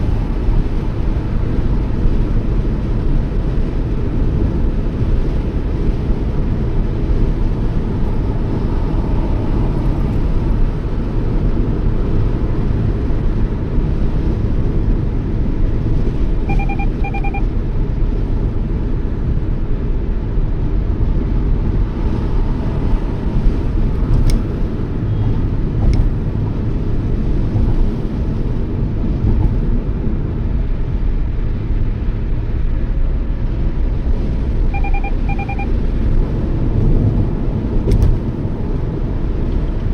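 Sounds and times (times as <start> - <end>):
car road and engine rumble: 0.0 - 39.9
car warning chime double beep: 16.4 - 17.6, 34.7 - 35.9.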